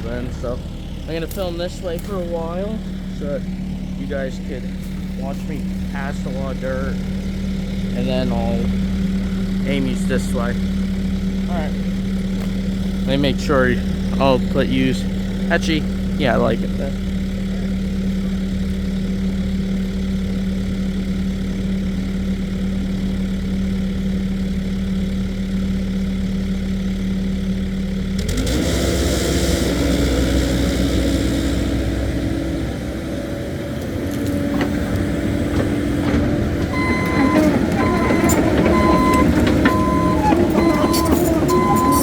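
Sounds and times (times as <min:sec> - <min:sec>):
excavator diesel engine: 0:00.0 - 0:42.0
short electronic beeping: 0:36.7 - 0:42.0.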